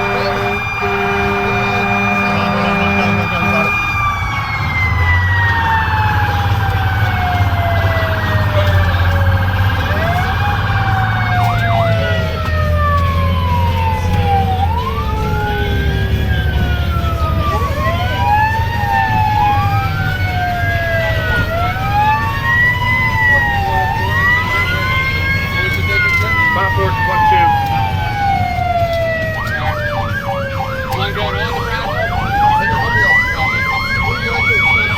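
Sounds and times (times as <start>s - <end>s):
air horn: 0.0s - 4.0s
fire engine siren wailing: 0.0s - 34.9s
truck engine droning: 0.0s - 34.9s.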